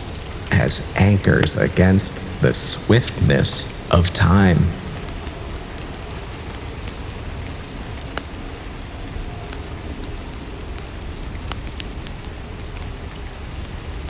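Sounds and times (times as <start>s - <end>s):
steady rainfall: 0.0s - 14.0s.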